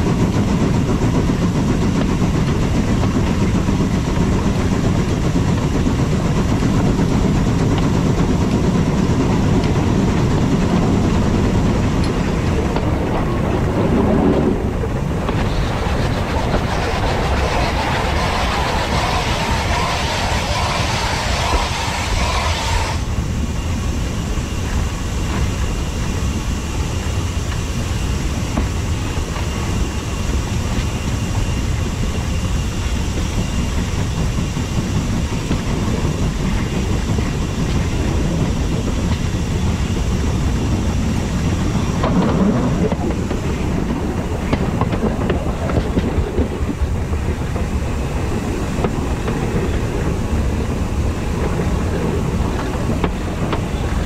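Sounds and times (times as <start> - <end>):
clickety-clack of rail joints: 0.0 - 23.0, 28.5 - 54.0
train wheels rumbling on rails: 0.0 - 54.0
steam hiss: 15.3 - 23.2.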